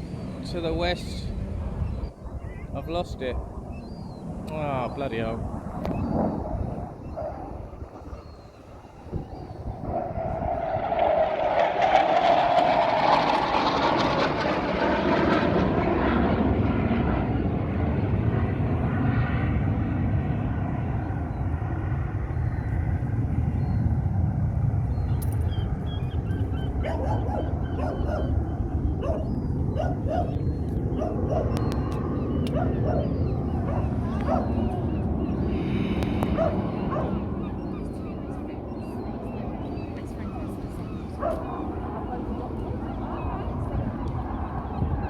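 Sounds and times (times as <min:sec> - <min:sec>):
jet engine roar: 0:00.0 - 0:45.0
dog barking: 0:26.8 - 0:28.4, 0:29.0 - 0:31.6, 0:32.5 - 0:34.6, 0:36.3 - 0:37.2, 0:41.2 - 0:41.6.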